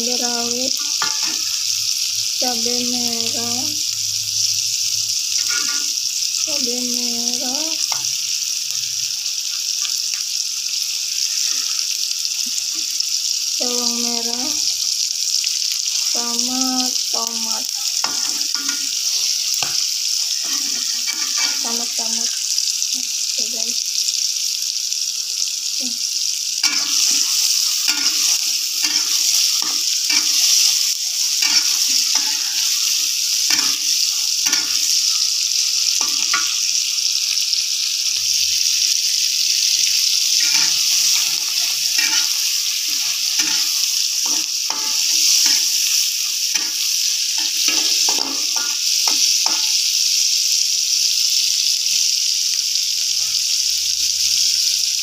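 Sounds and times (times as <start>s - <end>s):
food sizzling in hot oil: 0.0s - 55.0s
metal spatula scraping a wok: 0.9s - 1.5s, 5.4s - 5.9s, 18.0s - 21.8s, 26.6s - 34.9s, 40.4s - 45.9s.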